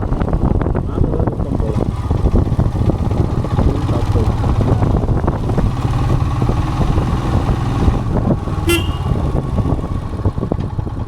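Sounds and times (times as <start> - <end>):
motorcycle engine running: 0.0 - 11.0
horn toot: 8.6 - 9.3.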